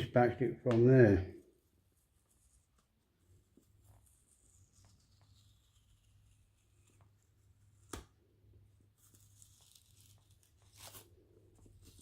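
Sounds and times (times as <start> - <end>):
packaging tearing and crinkling: 9.0 - 12.0.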